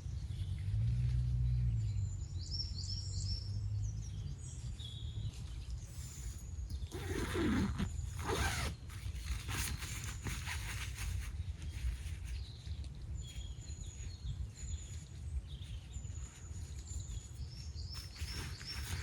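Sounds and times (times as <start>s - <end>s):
rustling: 6.7s - 19.0s.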